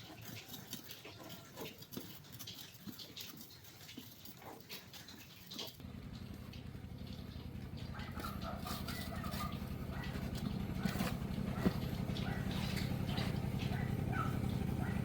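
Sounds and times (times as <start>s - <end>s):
motorcycle engine starting and idling: 5.8s - 15.0s.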